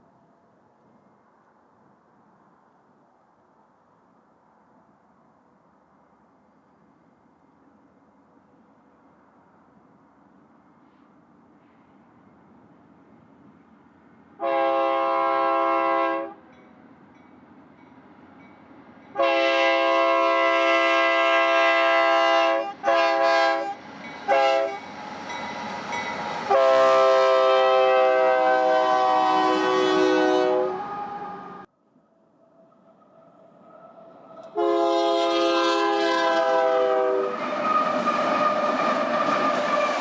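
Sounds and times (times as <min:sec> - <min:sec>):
locomotive air horn blasts: 0:14.4 - 0:16.4, 0:19.2 - 0:24.8, 0:26.5 - 0:31.7, 0:34.5 - 0:40.0.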